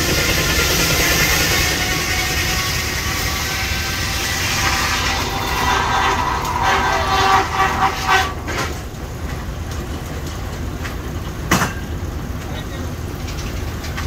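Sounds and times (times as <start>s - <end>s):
engine rumbling: 0.0s - 14.0s
sawmill running: 0.0s - 14.0s.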